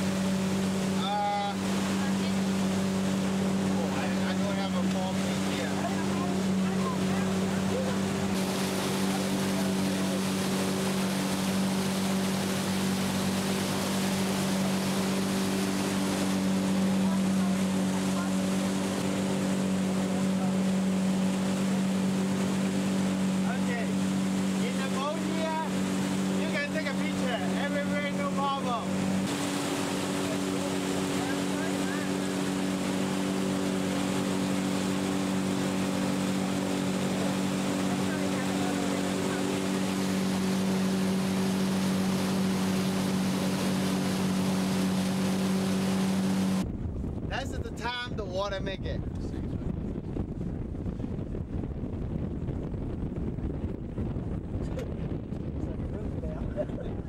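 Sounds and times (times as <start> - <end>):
motorboat engine humming: 0.0 - 57.0
wind and water rushing: 0.0 - 57.0
wind noise: 28.9 - 57.0.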